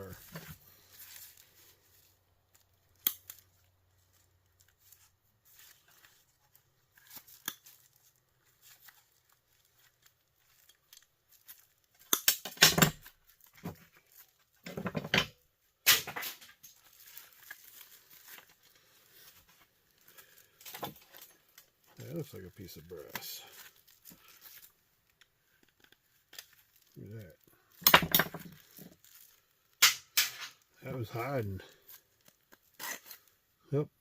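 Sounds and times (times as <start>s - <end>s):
hand cutters snipping zip ties: 12.0s - 12.6s.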